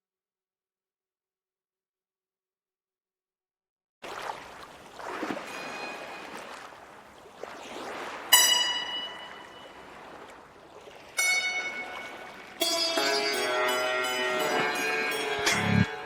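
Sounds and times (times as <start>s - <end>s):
struck ringing tones: 8.3s - 10.0s, 11.2s - 16.0s.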